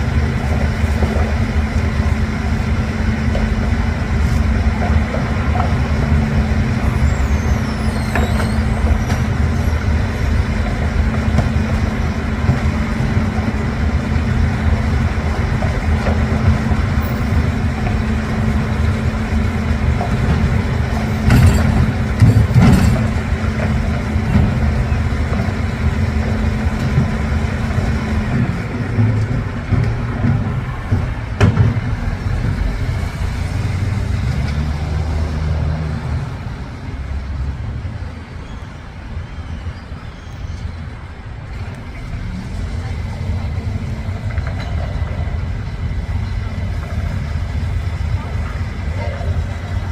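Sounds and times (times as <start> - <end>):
garbage truck diesel hum: 0.0 - 49.9
knocks and clatter: 19.9 - 25.6, 26.7 - 32.7.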